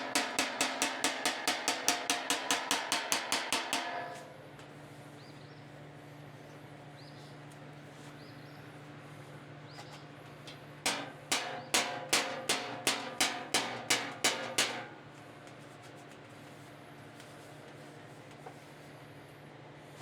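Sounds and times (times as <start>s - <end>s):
hammer ringing on steel: 0.0s - 4.4s, 10.9s - 15.0s
shop hum: 0.0s - 20.0s.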